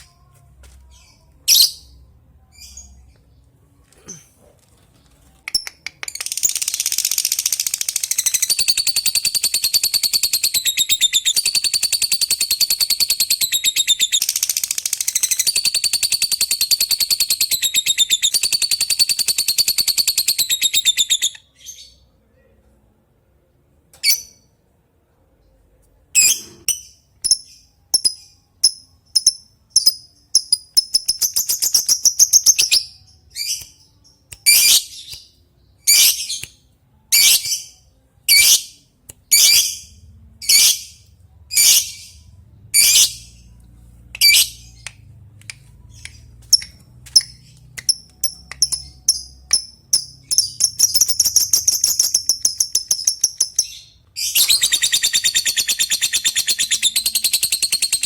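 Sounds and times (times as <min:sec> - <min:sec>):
lovebird rapid chattering trill: 0:48.2 - 0:53.7, 0:54.4 - 0:58.0
lovebird short sharp chirps: 0:54.2 - 0:55.4.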